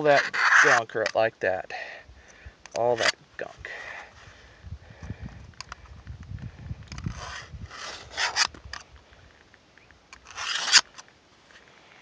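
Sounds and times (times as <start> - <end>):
tool scraping metal groove: 0.0 - 0.8.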